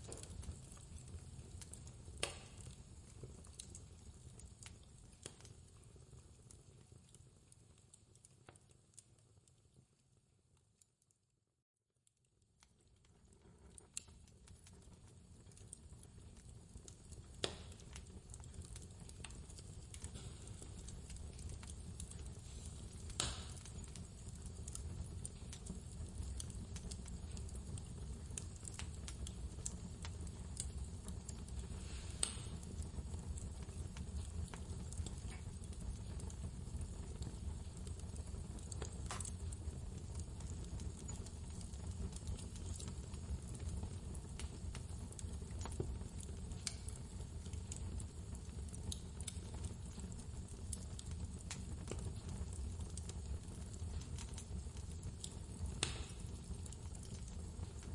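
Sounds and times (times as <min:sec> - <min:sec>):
wood fire crackling: 0:00.0 - 0:11.1, 0:12.0 - 0:57.9.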